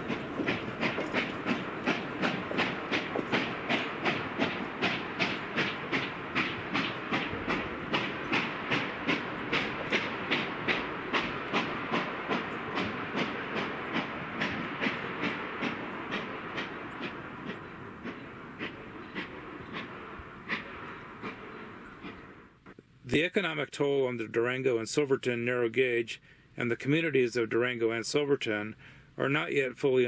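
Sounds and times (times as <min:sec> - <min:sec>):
steam hiss: 0:00.0 - 0:22.5
steam locomotive exhaust chuffing: 0:00.0 - 0:22.7.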